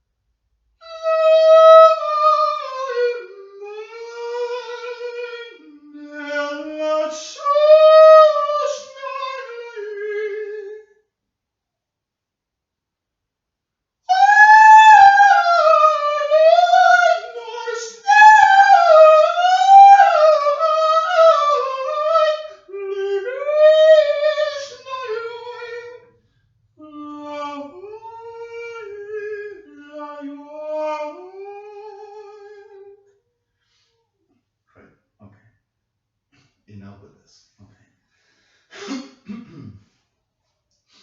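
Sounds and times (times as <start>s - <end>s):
woman singing wordless soprano: 0.8s - 10.8s, 14.1s - 26.1s, 26.8s - 33.0s.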